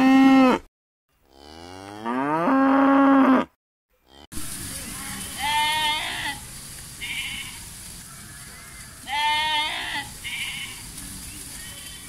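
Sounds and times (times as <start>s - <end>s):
sheep bleating: 5.0s - 6.4s, 7.0s - 7.6s, 9.0s - 10.8s.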